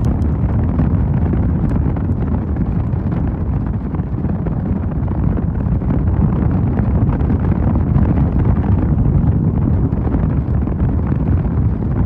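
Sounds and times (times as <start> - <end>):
motorcycle engine rumble: 0.0 - 3.3
wind buffeting microphone: 0.0 - 12.0.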